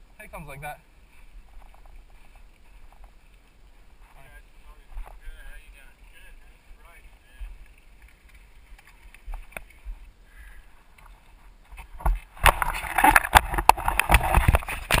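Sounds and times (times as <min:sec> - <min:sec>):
faint clicks: 0:01.6 - 0:03.7, 0:07.4 - 0:11.2.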